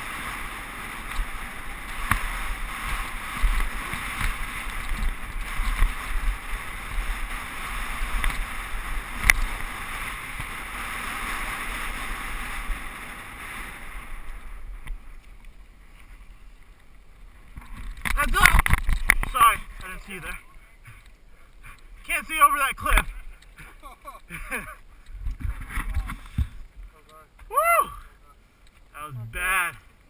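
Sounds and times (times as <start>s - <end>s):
rush of tyre and wind noise: 0.0s - 20.2s
bike clicks and knocks: 17.5s - 19.9s.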